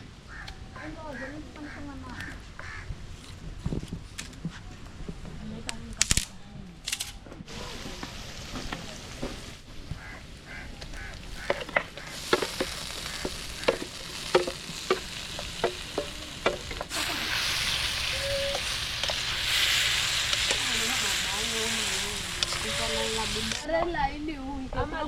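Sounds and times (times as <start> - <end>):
food sizzling in hot oil: 10.5 - 23.7
utensil knocking on cooking pot: 11.4 - 16.9.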